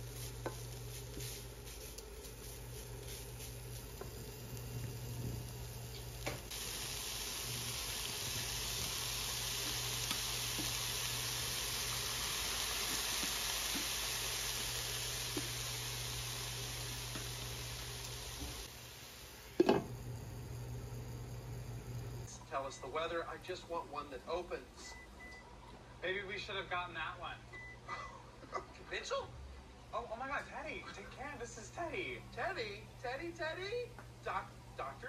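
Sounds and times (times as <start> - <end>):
food sizzling in a frying pan: 0.0 - 22.3
low steady hum: 14.1 - 26.0.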